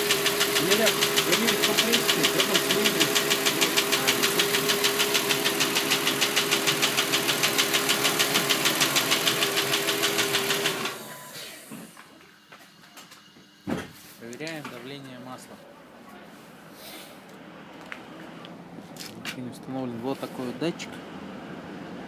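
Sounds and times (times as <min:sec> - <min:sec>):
car engine knocking: 0:00.0 - 0:10.8.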